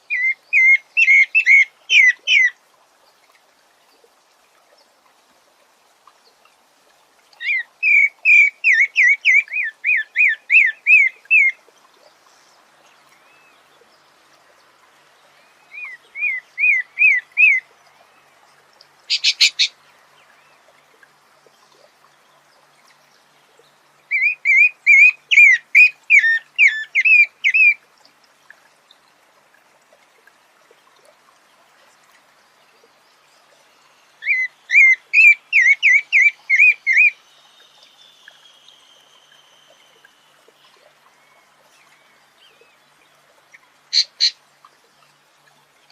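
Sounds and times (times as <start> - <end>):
bird singing clear notes: 19.1 - 19.7.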